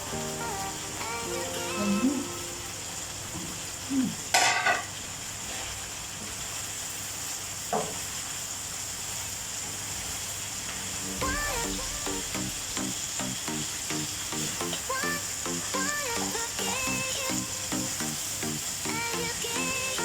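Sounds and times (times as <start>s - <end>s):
music: 0.0s - 3.2s, 11.2s - 20.0s
chicken sizzling in a pan: 0.0s - 20.0s.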